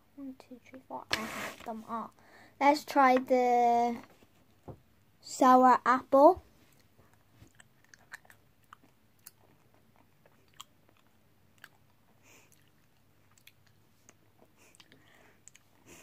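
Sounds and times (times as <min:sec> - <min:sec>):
faint chewing clicks: 0:06.8 - 0:15.8.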